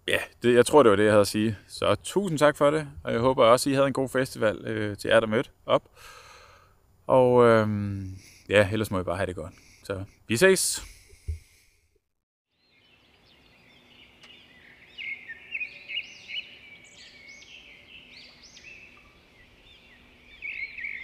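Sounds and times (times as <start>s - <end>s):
birds chirping and trilling: 12.5s - 21.0s.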